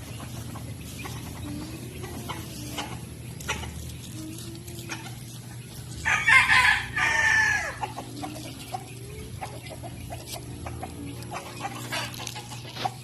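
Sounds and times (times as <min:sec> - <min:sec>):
chickens clucking: 0:00.0 - 0:13.0
rooster crowing: 0:06.0 - 0:07.8.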